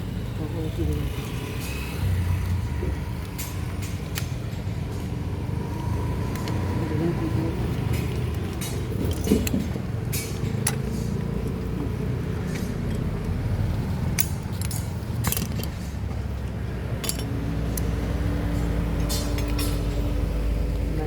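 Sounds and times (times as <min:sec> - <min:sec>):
metal tools clinking: 0:12.4 - 0:20.2.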